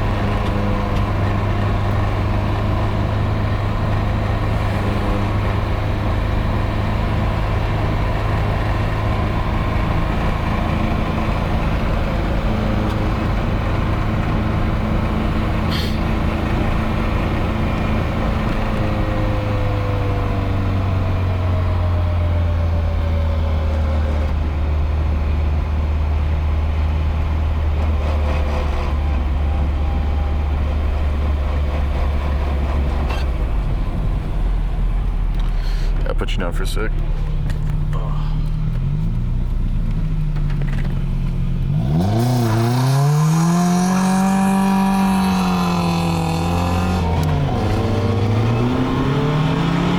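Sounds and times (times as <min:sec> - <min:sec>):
car engine and exhaust droning: 0:00.0 - 0:49.9.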